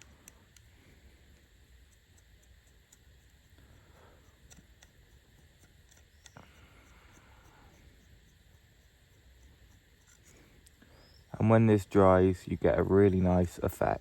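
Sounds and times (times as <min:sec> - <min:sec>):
faint low hum: 0:00.0 - 0:14.0
faint clicks: 0:04.2 - 0:07.6.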